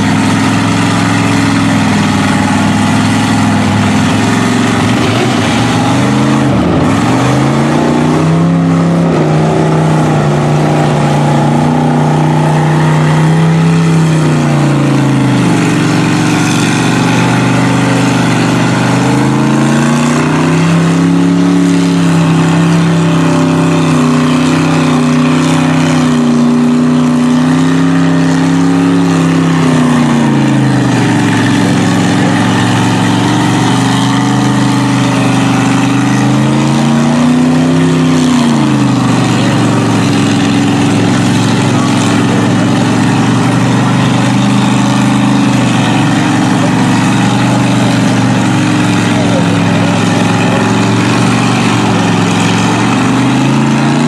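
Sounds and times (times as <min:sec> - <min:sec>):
truck engine revving: 0:00.0 - 0:54.0.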